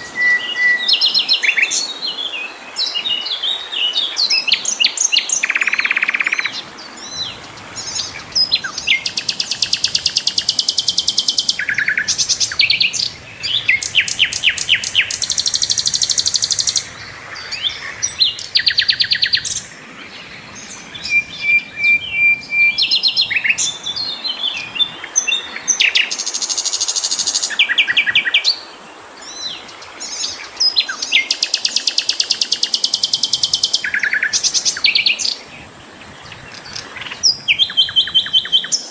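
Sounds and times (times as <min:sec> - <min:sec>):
flycatcher singing: 0:00.0 - 0:28.6, 0:29.2 - 0:38.9.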